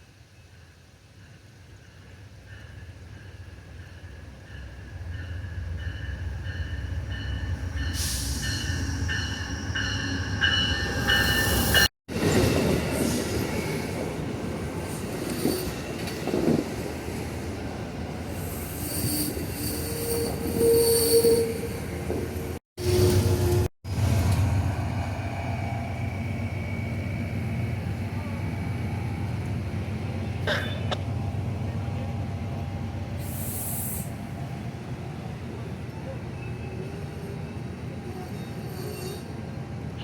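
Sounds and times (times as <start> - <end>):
train wheels and brakes squealing: 5.8 - 17.5, 18.3 - 24.3, 33.2 - 34.2, 36.0 - 40.0.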